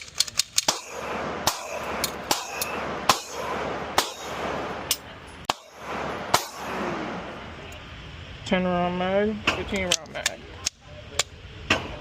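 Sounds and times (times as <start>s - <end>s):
metallic clicks and clanks: 0.0s - 0.9s
steady background hiss: 0.0s - 12.0s.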